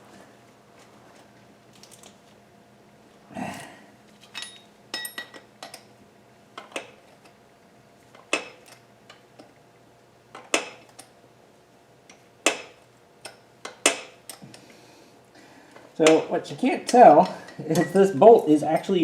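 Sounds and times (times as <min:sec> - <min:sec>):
metal tools clinking: 0:04.2 - 0:05.8, 0:16.9 - 0:19.0.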